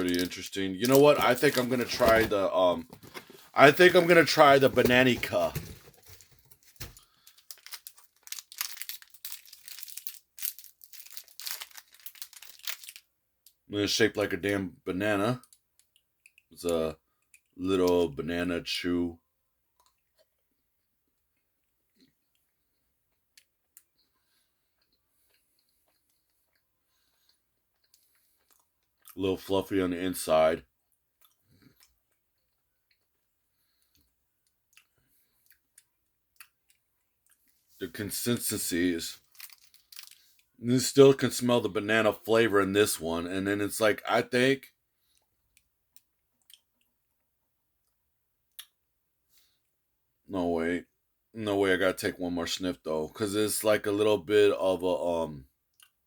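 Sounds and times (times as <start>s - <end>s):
candy wrapper crinkling and tearing: 0.0s - 13.6s, 38.0s - 41.3s
mouth clicks of chewing: 48.5s - 48.8s.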